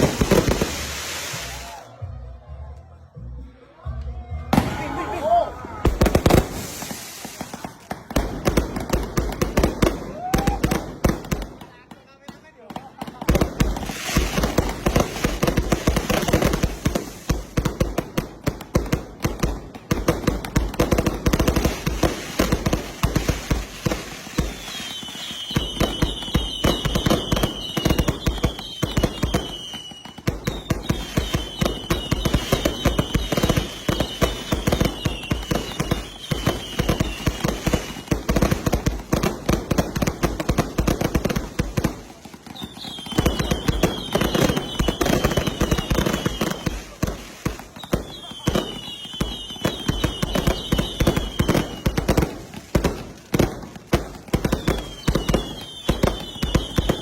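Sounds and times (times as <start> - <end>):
fireworks thumps and bangs: 0.0 - 1.8, 5.7 - 57.0
whistling firework shells: 21.4 - 39.0, 41.8 - 52.3, 54.4 - 57.0.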